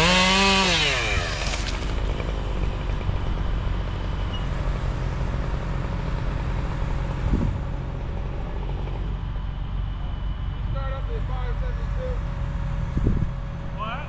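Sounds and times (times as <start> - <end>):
engine running at low speed: 0.0 - 14.0.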